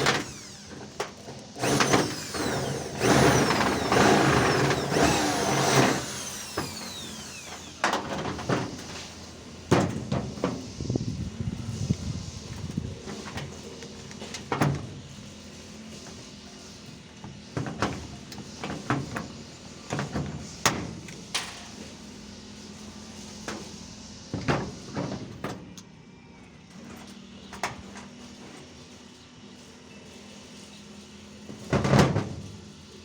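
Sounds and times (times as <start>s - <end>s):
construction knocks and clatters: 17.2s - 21.8s, 31.5s - 32.5s.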